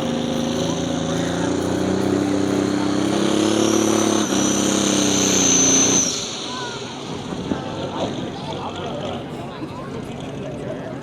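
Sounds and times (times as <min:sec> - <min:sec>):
engine running hard under load: 0:00.0 - 0:11.0
high rising whistle: 0:03.4 - 0:07.8.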